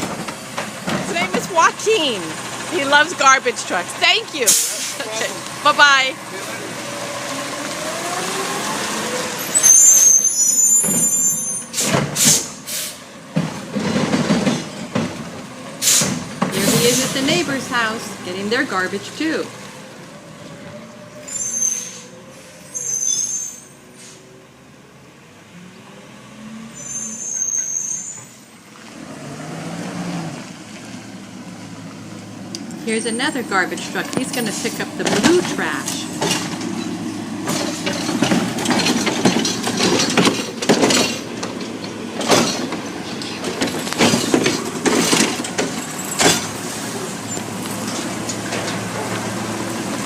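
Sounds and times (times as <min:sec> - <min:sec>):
truck engine rumble: 0:00.0 - 0:50.0
high-pitched squeal: 0:06.4 - 0:11.9, 0:26.6 - 0:28.5
high brake squeal: 0:09.2 - 0:13.0, 0:20.9 - 0:24.4, 0:26.6 - 0:28.6.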